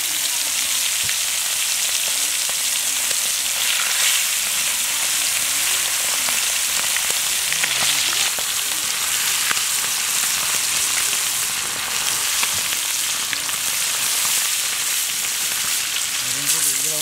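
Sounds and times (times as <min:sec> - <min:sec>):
chicken frying in oil: 0:00.0 - 0:17.0
oil popping: 0:02.4 - 0:17.0.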